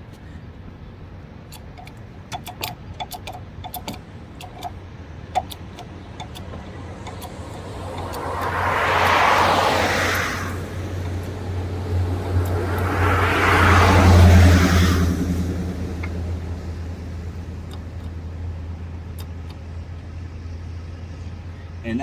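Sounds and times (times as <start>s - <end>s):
light metallic clicks: 1.4s - 9.2s, 17.4s - 18.2s, 19.0s - 20.4s
passing car road noise: 4.0s - 21.9s.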